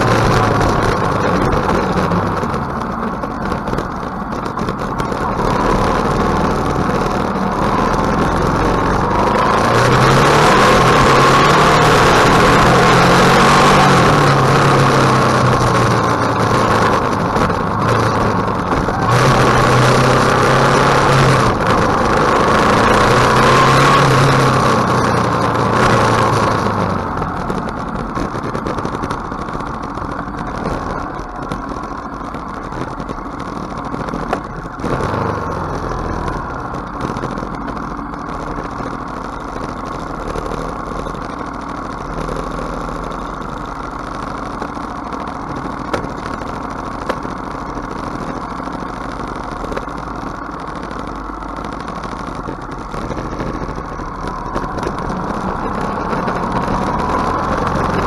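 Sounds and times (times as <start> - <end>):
motorcycle engine running: 0.0 - 58.0
rushing noise: 0.0 - 58.0.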